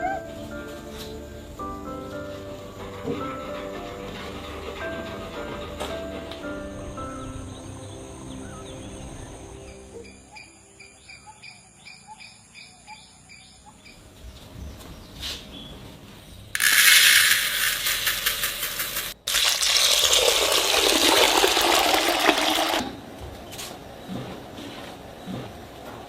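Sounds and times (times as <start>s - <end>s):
fast ticking: 16.6s - 22.8s
water pouring hard: 16.6s - 22.8s.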